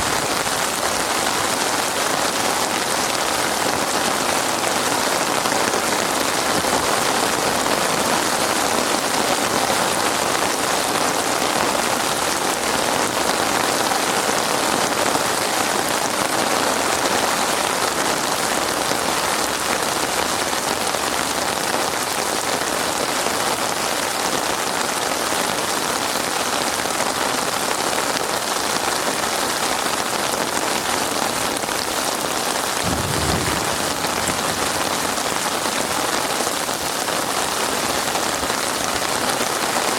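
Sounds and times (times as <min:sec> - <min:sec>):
heavy rain: 0:00.0 - 0:39.9
low rumble: 0:32.9 - 0:35.8.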